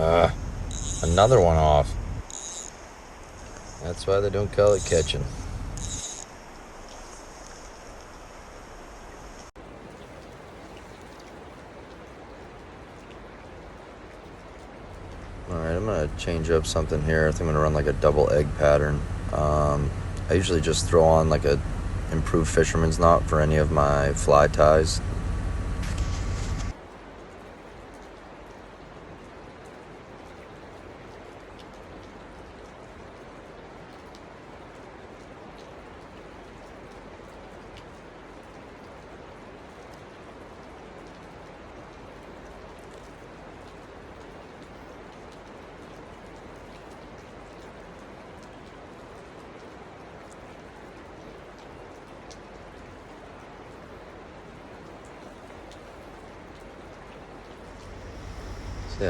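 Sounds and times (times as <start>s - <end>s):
creek water flowing: 0.0s - 59.0s
droplets and splashes: 0.0s - 59.0s
faint ticks: 0.1s - 1.2s, 2.2s - 3.9s, 4.6s - 18.4s.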